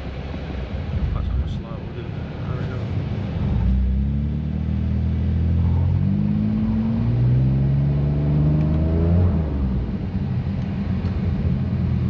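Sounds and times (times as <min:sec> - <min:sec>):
car engine accelerating: 0:03.0 - 0:12.0.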